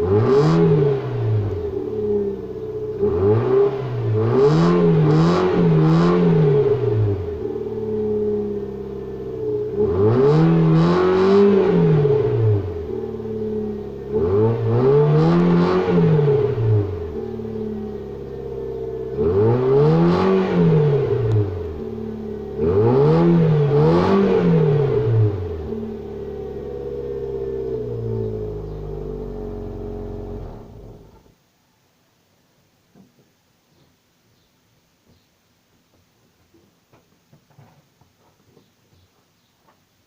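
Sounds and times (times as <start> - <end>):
car engine revving: 0.0 - 31.3.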